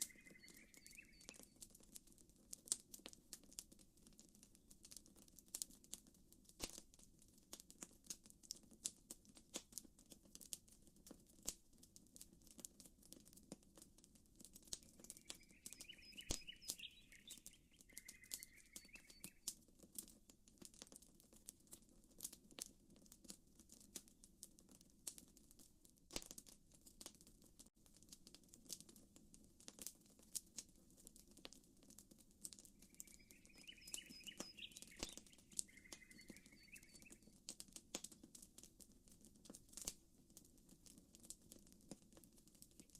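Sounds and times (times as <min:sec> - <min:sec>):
bird chirping: 0:00.0 - 0:01.6, 0:14.8 - 0:19.4, 0:32.8 - 0:37.4
campfire crackling and popping: 0:00.0 - 0:42.9.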